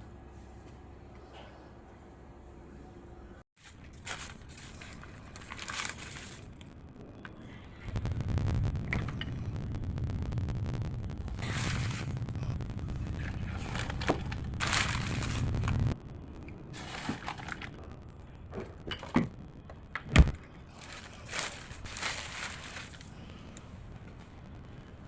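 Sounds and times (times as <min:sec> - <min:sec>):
low rumble: 0:05.2 - 0:25.0.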